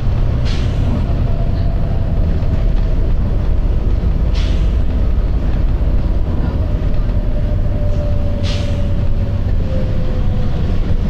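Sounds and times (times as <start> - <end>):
diesel bus engine rumbling: 0.0 - 11.0
air brake hiss: 8.4 - 9.0.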